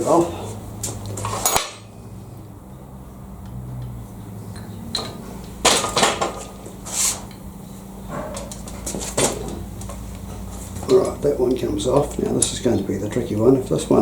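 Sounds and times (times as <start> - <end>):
metal tools clinking and scraping: 0.0 - 1.9, 4.6 - 7.4
steady low hum: 0.0 - 14.0.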